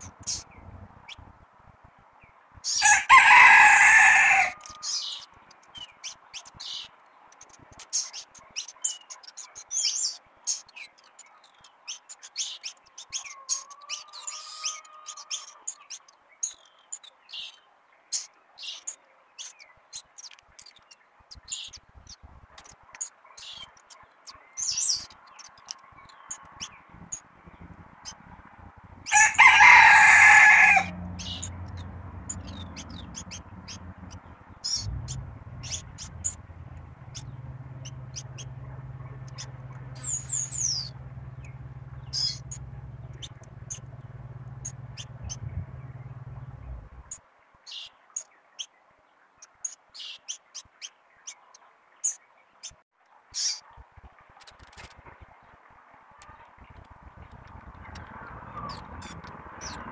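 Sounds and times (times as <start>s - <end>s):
high bird chirps: 0.0s - 1.3s, 24.6s - 47.2s, 56.3s - 59.9s
loud bird call: 2.7s - 5.2s, 29.0s - 47.1s.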